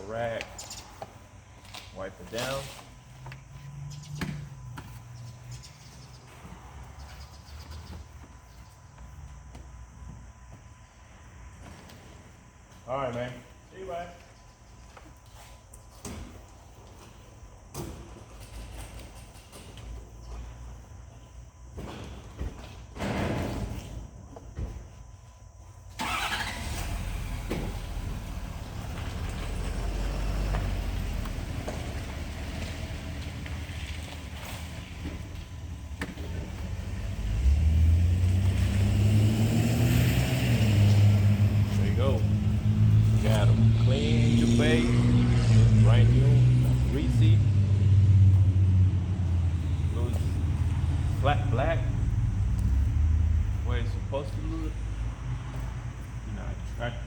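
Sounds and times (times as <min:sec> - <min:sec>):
car engine starting and idling: 0:25.9 - 0:57.0.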